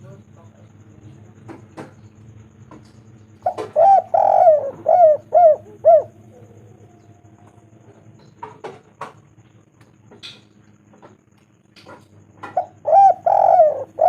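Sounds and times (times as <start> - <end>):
dove cooing: 3.2 - 8.8, 12.4 - 14.0.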